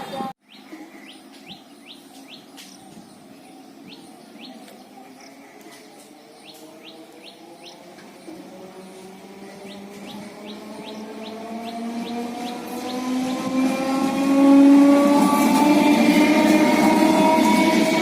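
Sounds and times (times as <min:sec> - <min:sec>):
bird chirping: 0:00.4 - 0:13.6.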